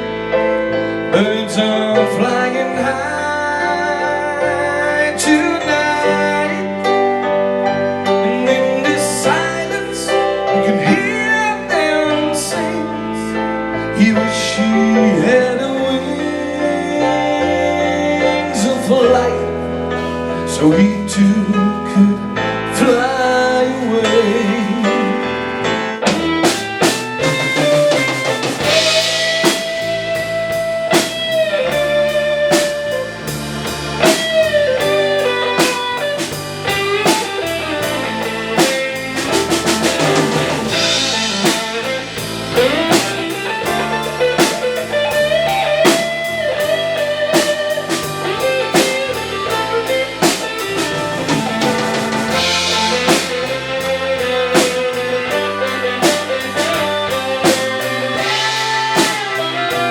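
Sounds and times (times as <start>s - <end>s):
bass guitar: 0.0s - 59.9s
lead guitar bending notes: 0.0s - 59.9s
drum kit: 22.8s - 59.9s.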